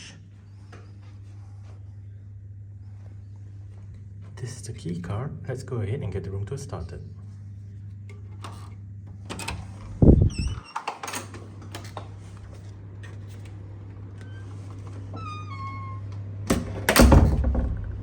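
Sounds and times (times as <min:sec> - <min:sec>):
low hum: 0:00.0 - 0:10.6
door handle clunk and clatter: 0:16.5 - 0:18.0
door lock thud: 0:16.5 - 0:18.0.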